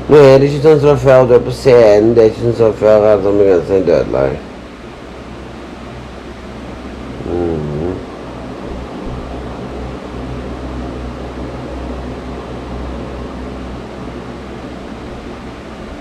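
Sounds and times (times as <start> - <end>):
low hum: 0.0 - 16.0
short voiced hum: 7.2 - 8.1.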